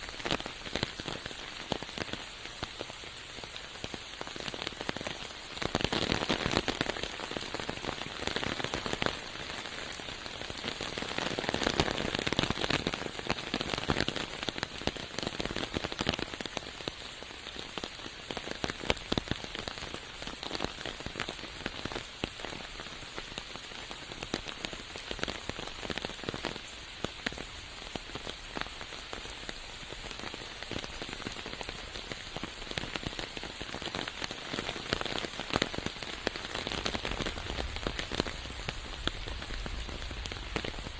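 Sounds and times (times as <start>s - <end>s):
rain falling through forest: 0.0s - 40.9s.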